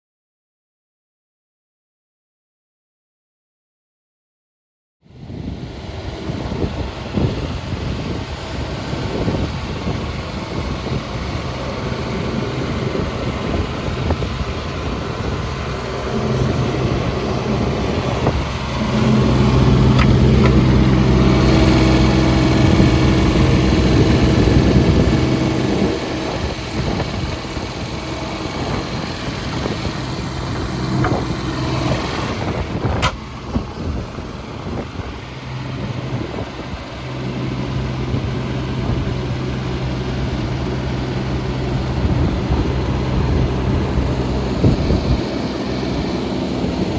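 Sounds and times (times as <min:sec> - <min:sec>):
excavator diesel engine running: 0:05.2 - 0:46.9
sharp click: 0:33.0 - 0:33.2.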